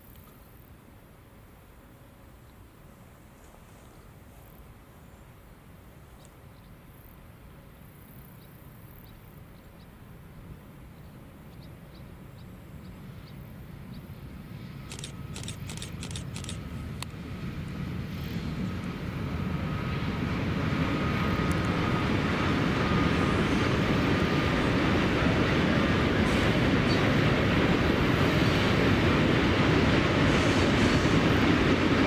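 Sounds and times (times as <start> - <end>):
train rumble: 9.2 - 32.0
sharp clicks: 14.8 - 17.1.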